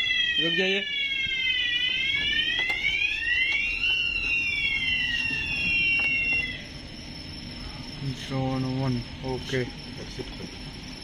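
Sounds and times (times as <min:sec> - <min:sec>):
fire alarm wailing: 0:00.0 - 0:07.0
steady high alarm tone: 0:00.0 - 0:11.0.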